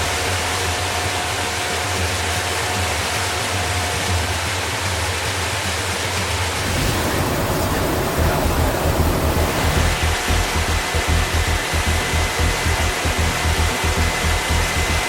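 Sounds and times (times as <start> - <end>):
jet engines roaring: 6.6 - 14.6.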